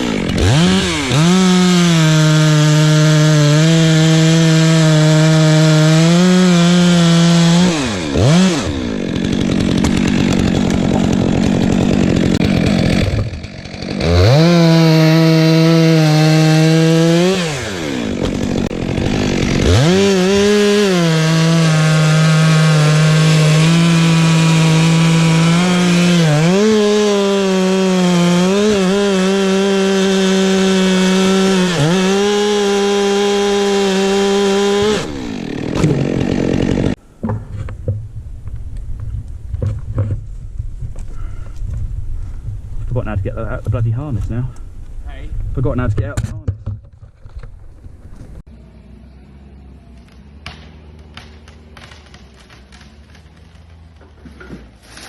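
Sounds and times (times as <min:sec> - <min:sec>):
chainsaw cutting wood: 0:00.0 - 0:38.2, 0:50.0 - 0:55.0.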